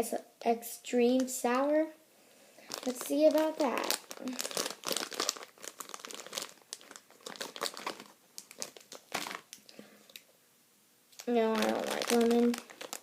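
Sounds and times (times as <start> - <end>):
plastic wrapper crinkling and tearing: 2.6 - 10.3, 11.2 - 13.0.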